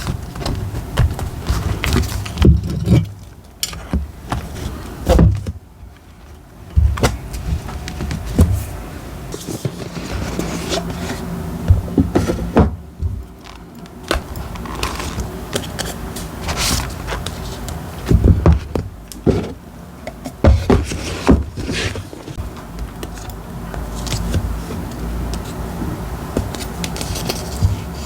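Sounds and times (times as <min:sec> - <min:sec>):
paper and stationery handling: 0:07.0 - 0:19.6, 0:26.4 - 0:28.0.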